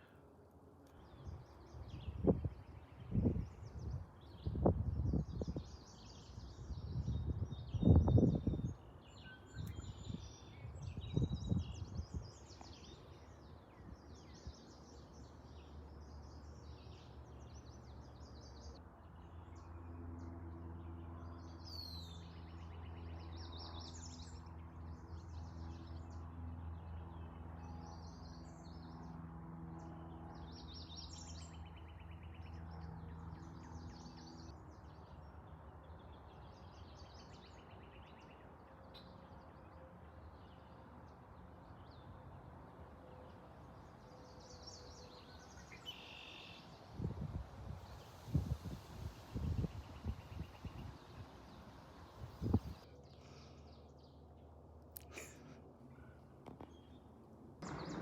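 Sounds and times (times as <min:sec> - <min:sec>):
birds singing and chirping: 0:00.9 - 0:18.8, 0:44.3 - 0:46.7, 0:57.6 - 0:58.0.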